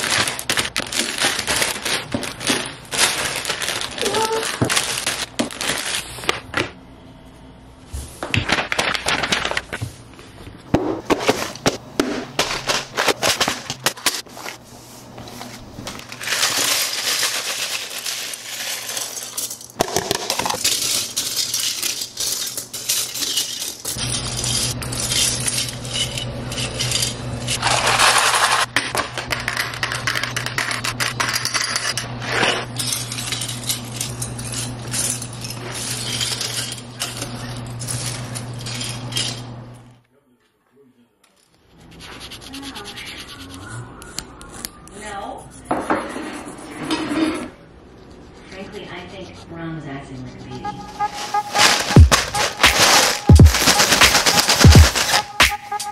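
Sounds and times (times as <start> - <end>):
plastic bags crinkling: 0.0 - 6.5, 8.4 - 9.8, 15.8 - 25.5, 50.8 - 55.9
plastic parts clattering: 0.0 - 6.5, 15.9 - 39.4, 51.0 - 55.9.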